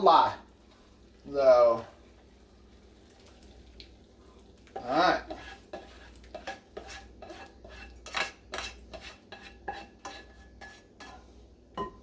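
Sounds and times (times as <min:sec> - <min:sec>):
utensil scraping and knocking pan: 0:04.8 - 0:12.0.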